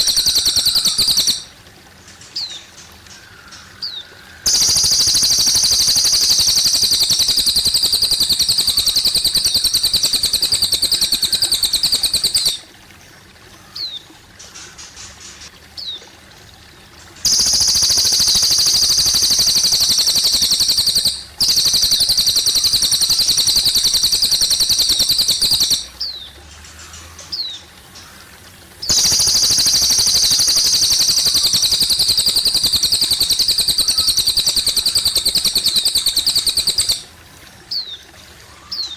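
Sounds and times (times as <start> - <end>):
songbird rapid high trills: 0.0 - 1.6, 2.4 - 12.8, 17.2 - 26.2, 28.8 - 37.9
faint trickling water: 0.0 - 38.9
short rising bird chirps: 4.5 - 12.7.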